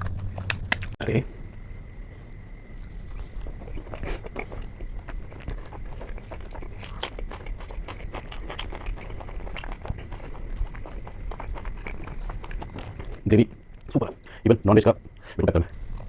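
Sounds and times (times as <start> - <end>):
person chewing with mouth clicks: 2.8 - 13.2.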